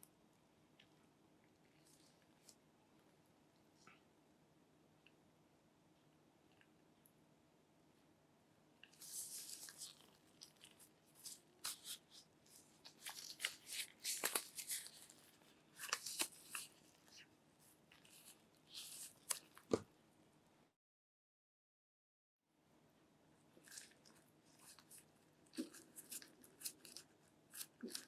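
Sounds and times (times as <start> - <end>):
tearing and crinkling packaging: 9.0 - 17.2, 23.7 - 28.0.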